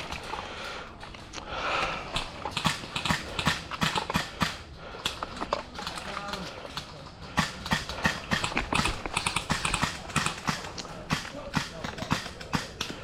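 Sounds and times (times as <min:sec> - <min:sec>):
airsoft rifle shots snapping: 0:02.2 - 0:04.7, 0:07.4 - 0:13.0.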